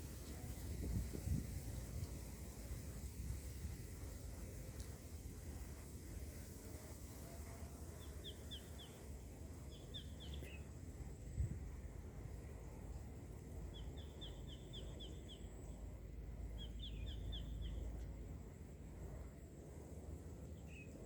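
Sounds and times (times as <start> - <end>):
low steady rumble: 8.9 - 21.0
small bird chirping: 9.7 - 10.7.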